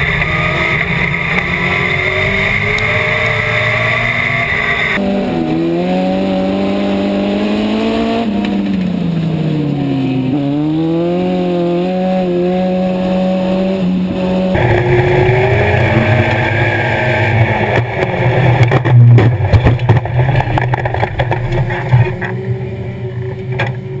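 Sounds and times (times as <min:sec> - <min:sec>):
race car engine: 0:00.0 - 0:24.0
rushing noise: 0:14.2 - 0:22.5.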